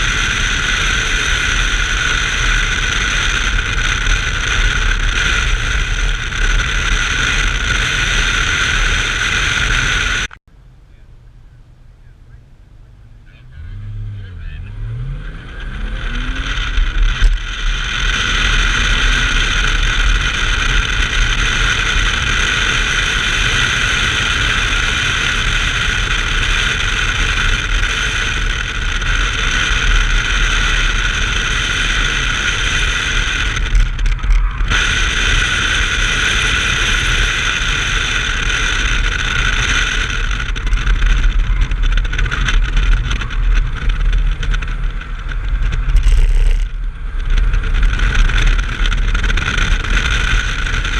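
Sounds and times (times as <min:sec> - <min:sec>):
car engine at speed: 0:00.0 - 0:50.9
wind drone: 0:14.3 - 0:50.9.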